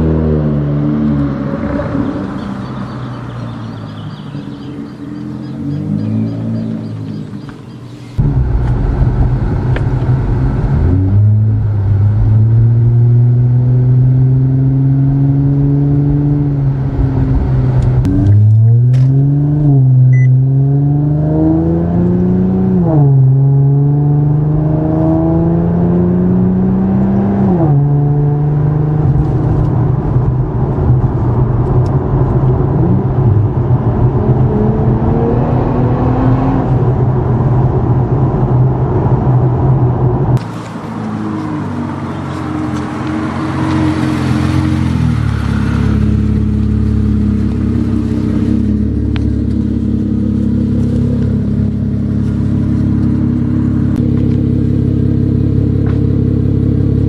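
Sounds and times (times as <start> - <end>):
car exhaust accelerating: 0.0 - 57.0.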